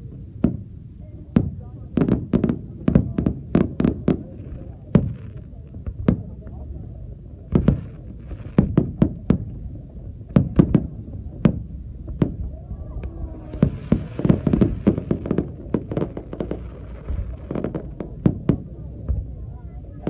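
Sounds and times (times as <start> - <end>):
fireworks bangs and crackle: 0.0 - 20.0.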